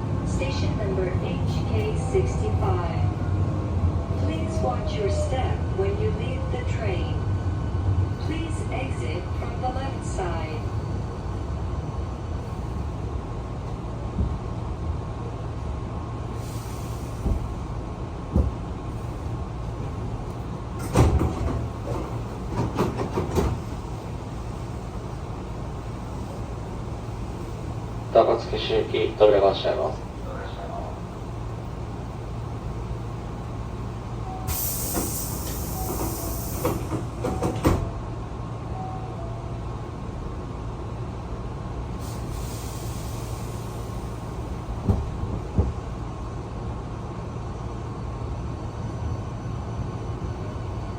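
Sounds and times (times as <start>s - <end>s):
train low hum: 0.0s - 50.9s
train clatter: 17.0s - 24.8s, 34.5s - 38.0s, 43.5s - 46.1s
door air hiss: 34.5s - 37.0s.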